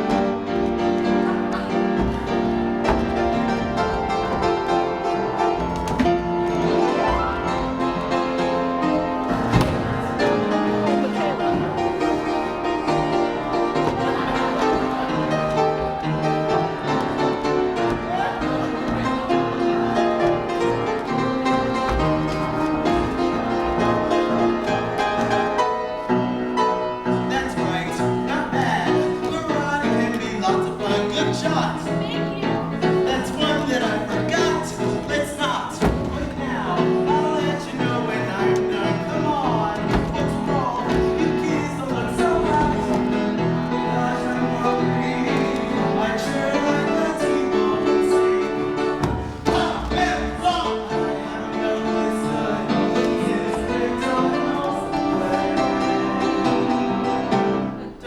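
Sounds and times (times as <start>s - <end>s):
instrumental accompaniment: 0.0s - 58.0s.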